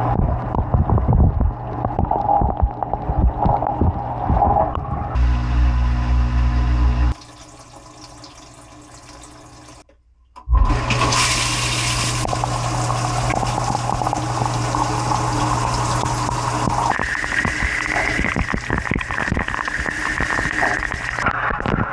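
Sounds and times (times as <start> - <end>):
dishwasher pump spraying water: 10.6 - 21.2.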